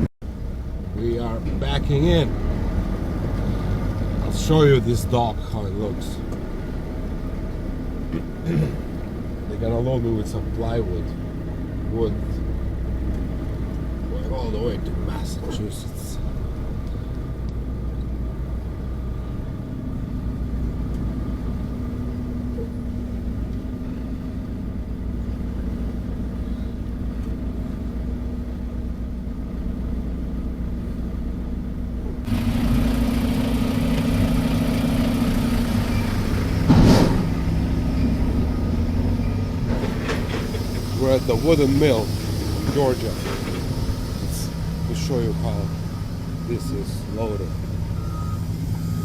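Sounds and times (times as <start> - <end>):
diesel truck engine idling: 0.0 - 49.0.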